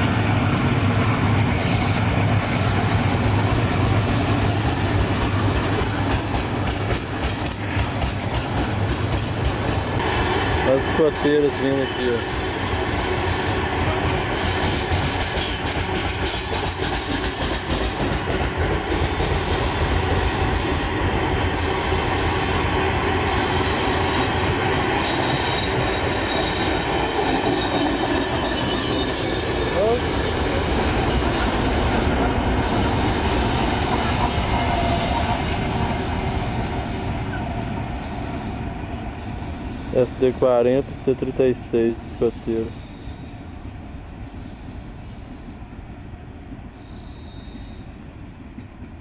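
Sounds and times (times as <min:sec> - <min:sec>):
train wheels rumbling on rails: 0:00.0 - 0:49.0
faint high wheel squeals: 0:42.1 - 0:43.4, 0:46.7 - 0:48.2.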